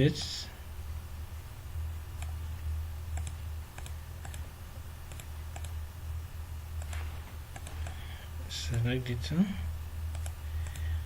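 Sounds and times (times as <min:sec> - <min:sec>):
steady low hum: 0:00.0 - 0:11.0
computer mouse clicks: 0:02.2 - 0:02.4, 0:03.1 - 0:04.4, 0:05.1 - 0:05.8, 0:06.8 - 0:08.0, 0:10.1 - 0:10.9.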